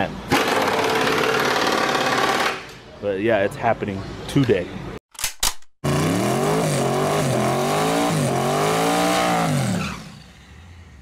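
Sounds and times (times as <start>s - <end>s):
car engine revving: 5.8s - 11.0s.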